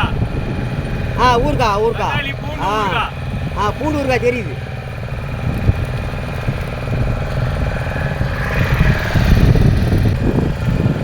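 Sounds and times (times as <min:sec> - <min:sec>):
boat engine droning: 0:00.0 - 0:11.0
rushing noise: 0:07.6 - 0:10.6.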